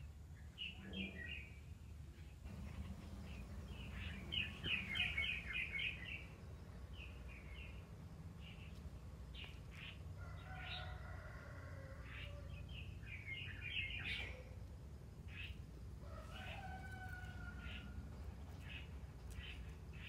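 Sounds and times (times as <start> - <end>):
birds chirping faintly: 0.0 - 20.0
low background rumble: 1.7 - 10.4
drawn-out bird calls: 2.5 - 6.4.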